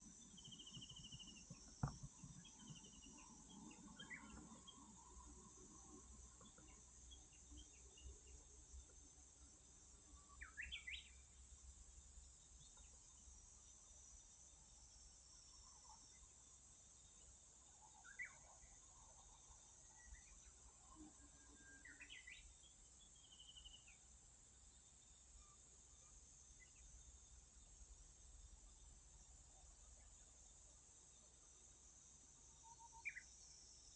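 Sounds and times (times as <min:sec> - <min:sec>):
bird chirps: 0:00.2 - 0:05.4, 0:10.2 - 0:11.3, 0:17.8 - 0:18.8, 0:19.9 - 0:24.0, 0:32.6 - 0:33.5.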